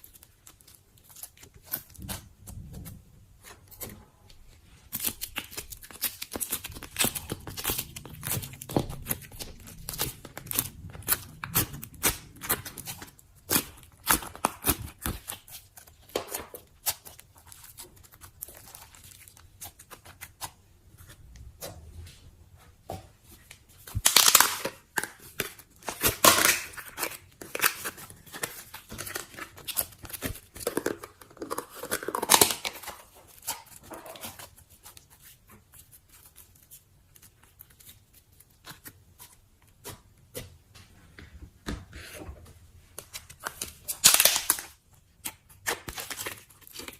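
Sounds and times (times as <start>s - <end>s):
sticky slime clicks and crackles: 43.1s - 46.9s.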